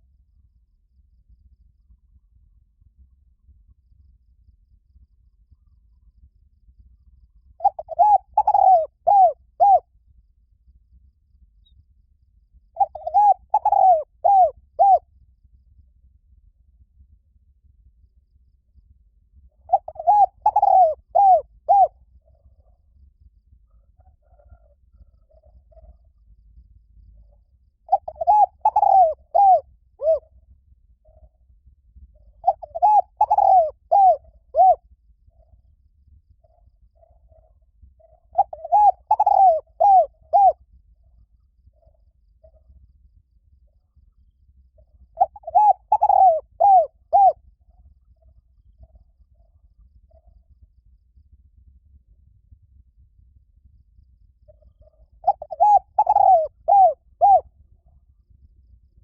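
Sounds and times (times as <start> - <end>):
dove cooing: 7.6 - 9.9, 12.8 - 15.0, 19.6 - 22.5, 27.9 - 30.3, 32.3 - 34.8, 36.5 - 40.6, 44.8 - 47.4, 54.5 - 57.4.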